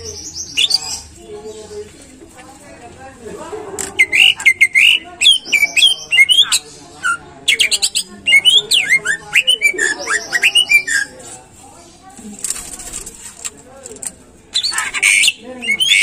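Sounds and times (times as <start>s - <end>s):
bird singing whistled notes: 7.5s - 11.1s, 14.6s - 16.0s.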